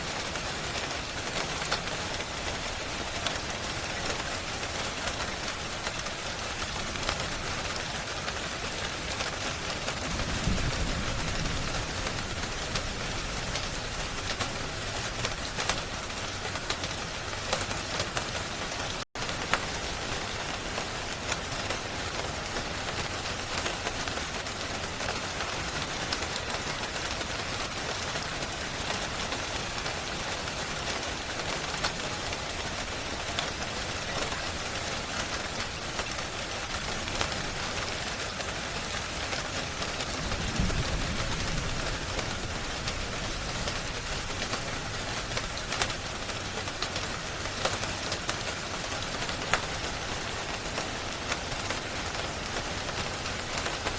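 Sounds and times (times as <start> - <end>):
steady rain: 0.0 - 53.9
wood fire crackling: 29.4 - 53.9.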